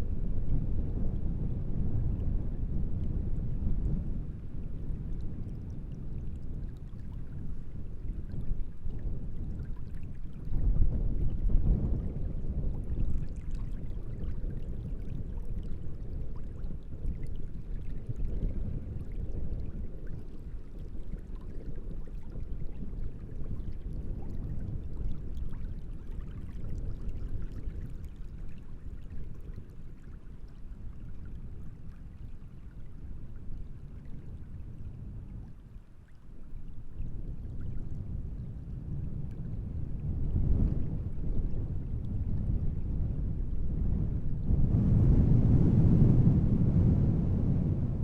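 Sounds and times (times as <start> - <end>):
wind gusts: 37.2 - 48.0.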